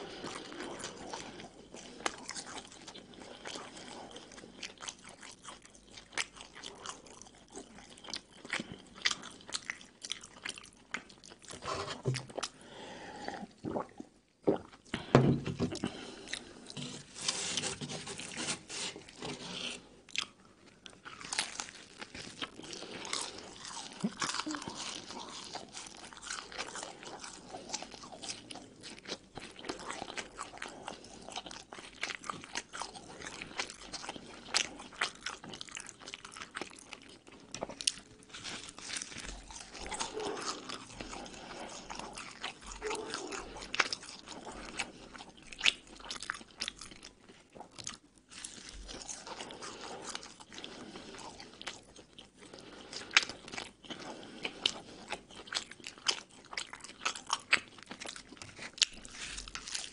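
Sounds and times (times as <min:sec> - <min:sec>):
biting and chewing crunchy bread: 0:00.0 - 0:12.6, 0:13.7 - 0:59.9.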